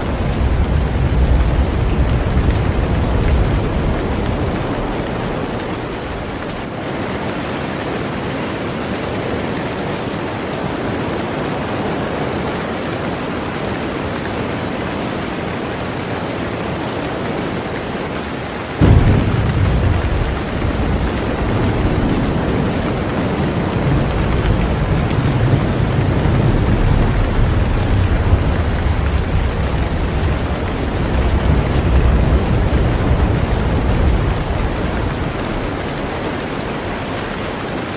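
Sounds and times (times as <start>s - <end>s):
thunder rumbling: 0.0s - 6.8s, 18.8s - 37.9s
heavy rain on a boat: 0.0s - 37.9s.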